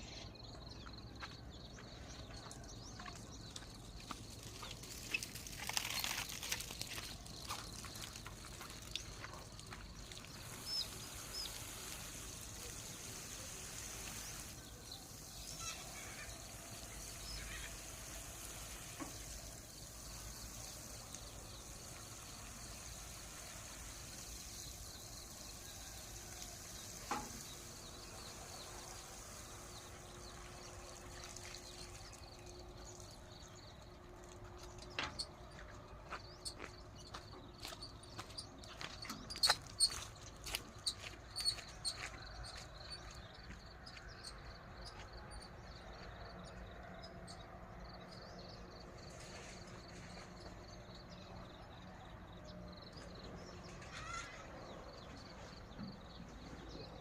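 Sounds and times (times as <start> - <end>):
water pouring and trickling: 1.8 - 43.6.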